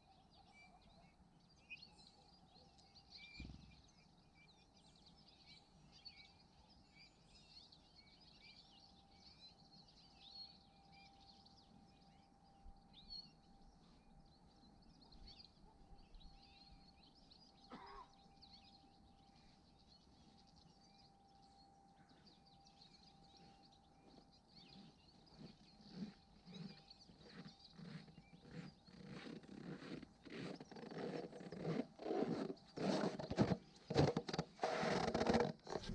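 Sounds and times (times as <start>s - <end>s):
small songbirds twittering: 0.0s - 35.9s
faint steady tone: 5.2s - 25.3s.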